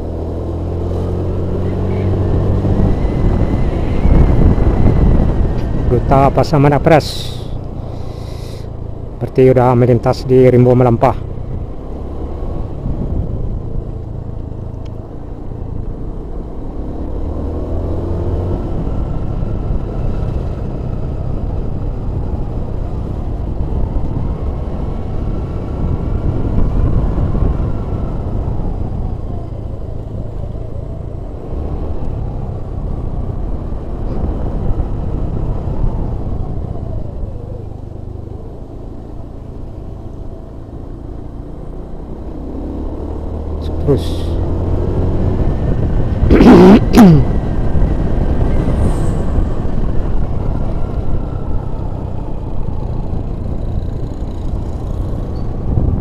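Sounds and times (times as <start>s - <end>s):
road noise: 0.0s - 56.0s
vehicle engine revving: 16.4s - 20.8s, 40.1s - 51.6s.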